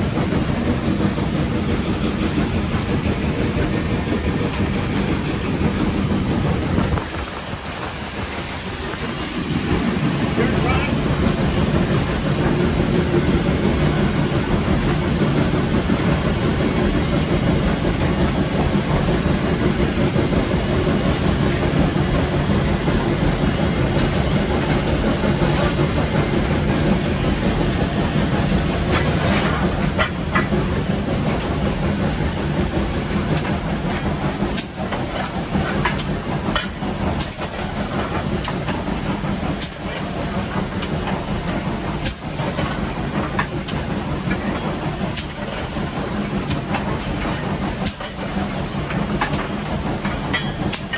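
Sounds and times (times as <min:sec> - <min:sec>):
steam locomotive hissing and running: 0:00.0 - 0:50.9
sharp clicks and knocks: 0:33.2 - 0:50.9.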